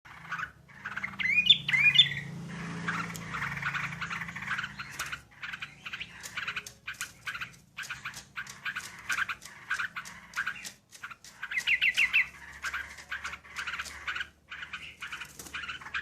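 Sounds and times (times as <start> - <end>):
bird chattering calls: 0.1 - 16.0.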